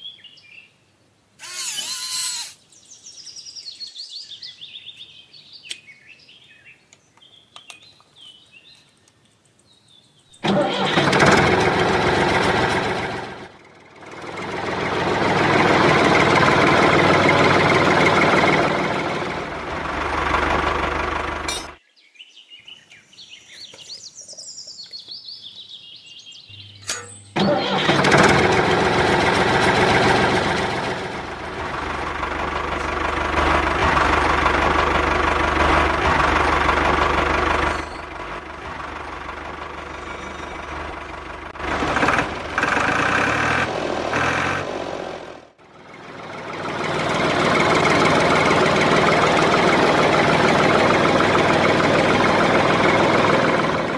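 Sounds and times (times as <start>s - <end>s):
small motor running: 1.4s - 2.6s.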